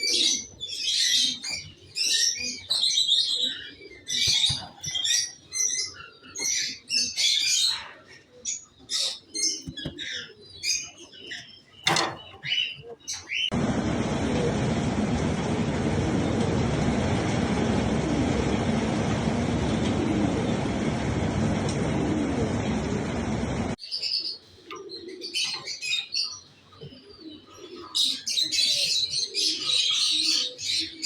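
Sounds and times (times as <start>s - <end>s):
birds chirping: 0.0s - 31.0s
loud rushing noise: 13.5s - 23.8s.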